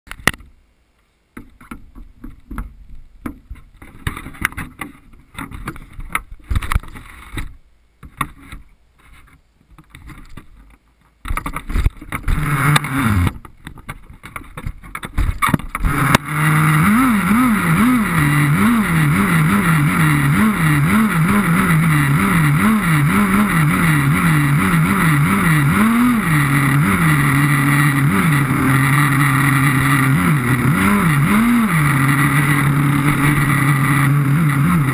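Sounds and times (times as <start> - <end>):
nitro rc car engine revving: 12.2 - 13.4, 15.8 - 34.9
handling knocks and clatter: 13.3 - 15.9.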